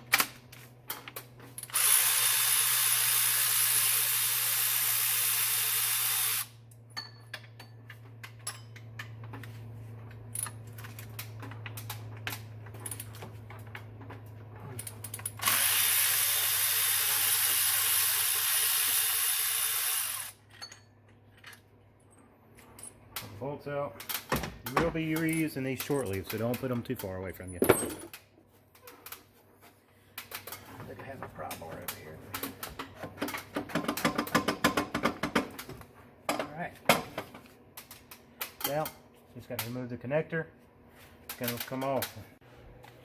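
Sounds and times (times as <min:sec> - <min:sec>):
power tool running: 0:01.6 - 0:06.6, 0:15.4 - 0:20.4.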